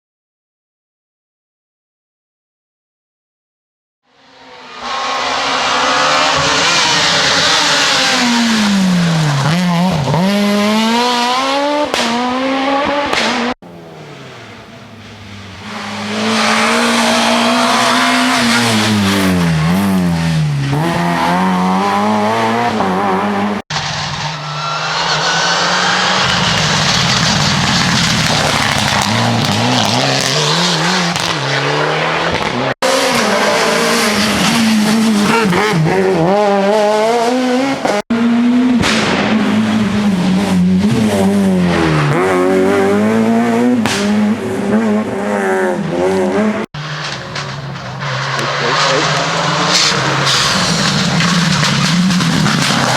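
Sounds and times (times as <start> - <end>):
rally car engines revving: 4.2 - 52.9.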